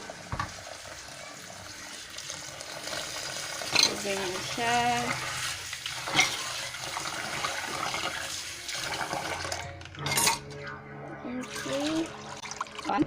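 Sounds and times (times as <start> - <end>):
water running from a tap: 0.0 - 9.8, 11.4 - 13.0
container clattering: 9.2 - 10.5.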